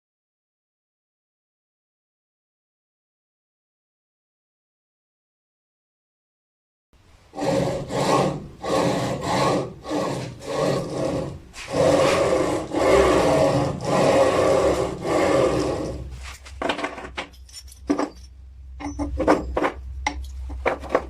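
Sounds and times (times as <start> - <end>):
hand saw rasping strokes: 7.3 - 16.6.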